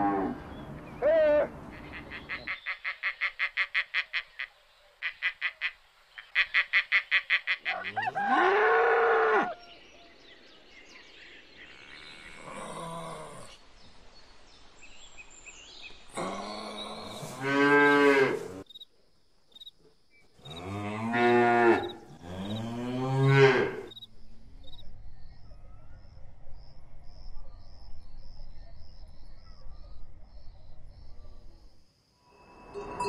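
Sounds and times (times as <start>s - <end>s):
cow mooing: 20.5s - 23.9s.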